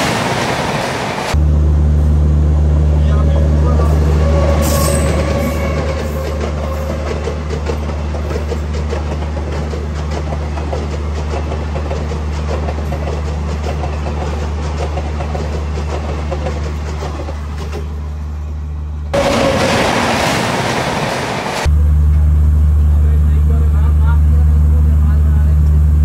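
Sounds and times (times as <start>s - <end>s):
train rumbling: 0.0s - 25.8s
wheels clattering over rail joints: 4.9s - 18.0s.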